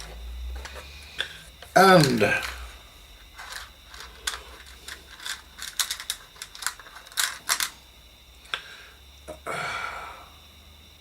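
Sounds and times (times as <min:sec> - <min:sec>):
small electronic parts clicking: 0:03.2 - 0:07.8.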